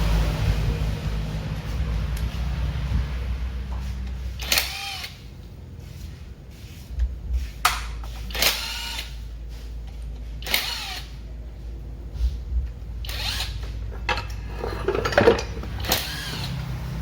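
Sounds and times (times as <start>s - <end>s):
steady low hum: 0.0s - 17.0s
power tool whine: 15.8s - 17.0s.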